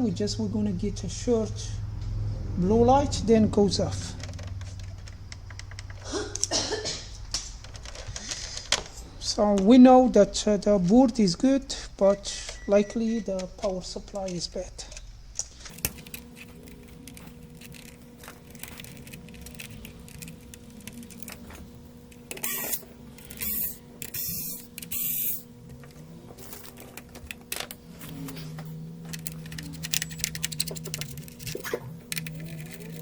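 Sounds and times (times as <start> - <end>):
low motor-like tone: 0.0 - 5.8, 15.7 - 33.0
electrical hum: 0.0 - 33.0
clicks and knocks of parts: 4.2 - 6.5, 7.3 - 9.7, 13.4 - 33.0.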